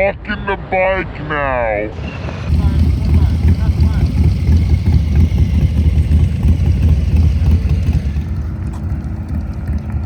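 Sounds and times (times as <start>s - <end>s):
motorcycle engine running slowly: 2.5s - 10.0s.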